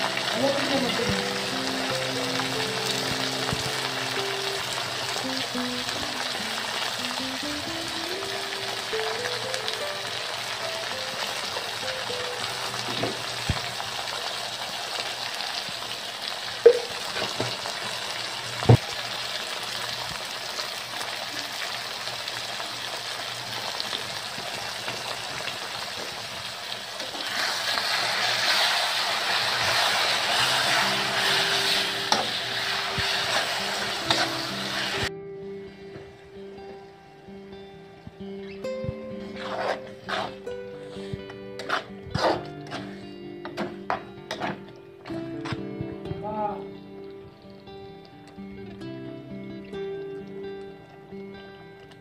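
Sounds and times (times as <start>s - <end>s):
food sizzling in a pan: 0.0s - 35.8s, 38.4s - 44.7s
spoon knocking against pan: 16.6s - 17.5s.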